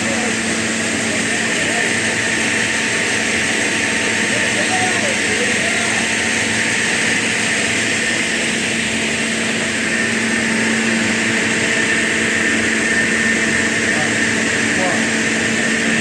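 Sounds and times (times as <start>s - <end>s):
woodworking machinery humming: 0.0s - 16.0s.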